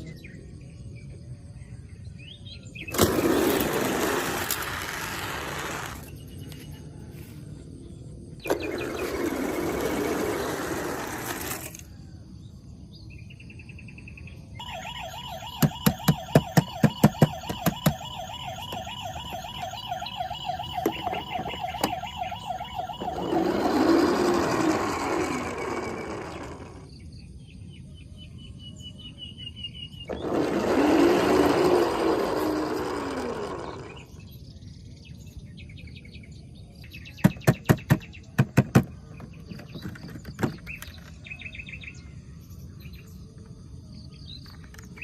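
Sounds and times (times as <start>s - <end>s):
toy electronic siren warbling: 14.6s - 26.9s, 30.1s - 34.2s.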